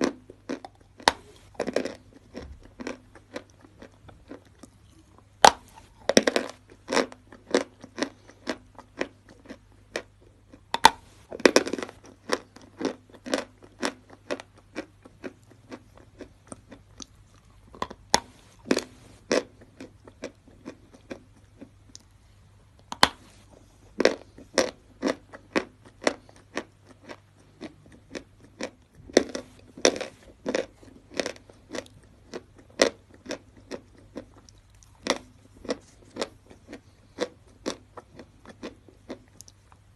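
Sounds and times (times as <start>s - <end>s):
chalk being chewed: 0.0s - 22.1s, 22.8s - 39.8s.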